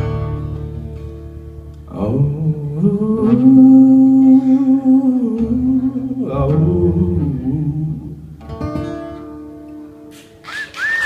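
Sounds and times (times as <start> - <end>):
acoustic guitar: 0.0 - 11.0
person singing: 1.9 - 8.2.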